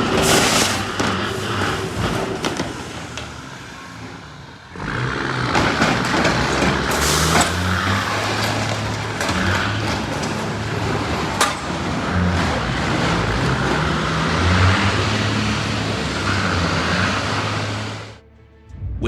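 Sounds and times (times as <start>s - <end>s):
road and traffic noise: 0.0s - 18.3s
heavy vehicle engine running: 0.0s - 19.0s.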